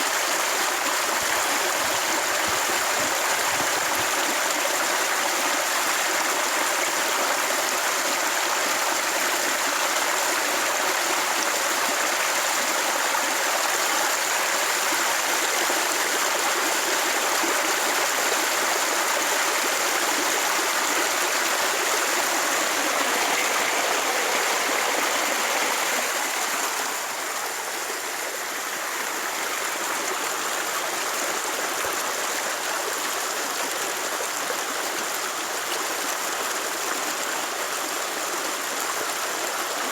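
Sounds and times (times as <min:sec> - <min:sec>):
steady rushing noise: 0:22.0 - 0:27.6.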